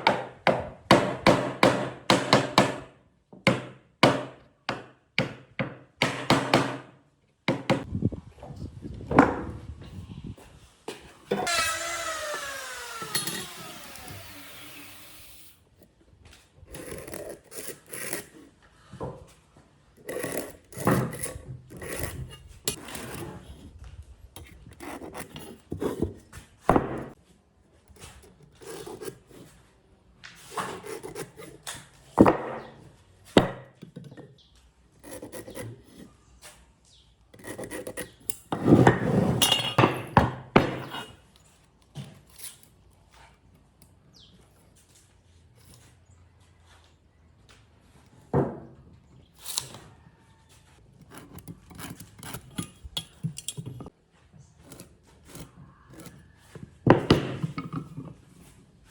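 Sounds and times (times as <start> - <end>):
power tool spinning down: 11.4 - 15.6.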